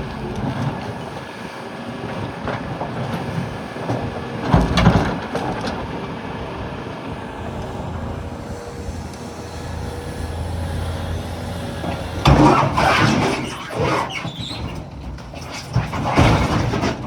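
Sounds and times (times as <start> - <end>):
excavator diesel engine running: 0.0 - 17.0
rocks crashing and clattering: 15.0 - 17.0.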